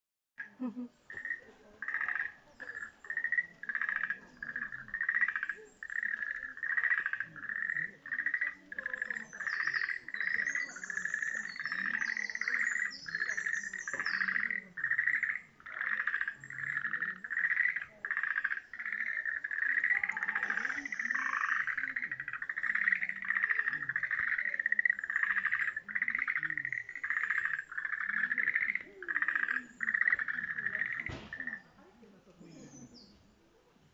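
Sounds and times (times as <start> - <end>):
frogs croaking: 0.4 - 31.9.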